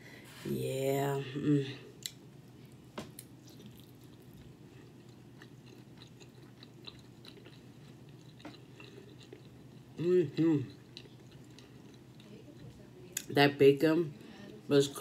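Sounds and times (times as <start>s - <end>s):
soft chewing: 1.6s - 13.3s.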